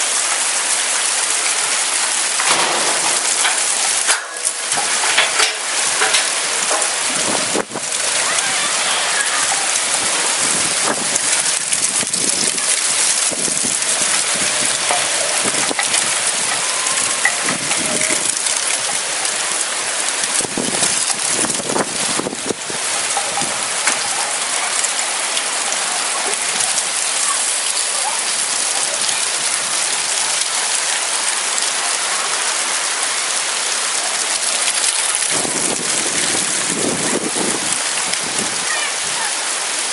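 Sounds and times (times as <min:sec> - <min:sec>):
heavy rain pouring: 0:00.0 - 0:39.9
drops spattering close by: 0:02.4 - 0:07.1.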